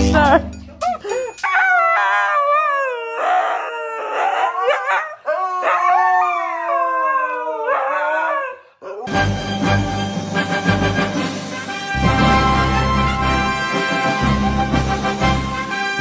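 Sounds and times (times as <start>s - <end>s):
music: 0.0s - 1.1s, 9.1s - 16.0s
husky howling: 1.4s - 9.1s.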